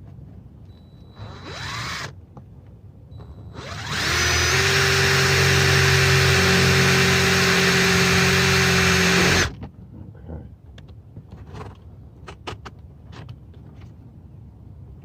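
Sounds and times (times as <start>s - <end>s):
power drill driving a screw: 1.2s - 2.1s, 3.5s - 9.5s.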